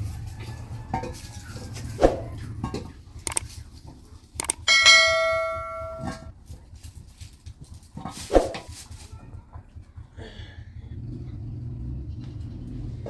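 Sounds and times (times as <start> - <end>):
kitchenware knocks and clinks: 4.6 - 6.3
metal vessel ringing bell-like: 4.6 - 6.3.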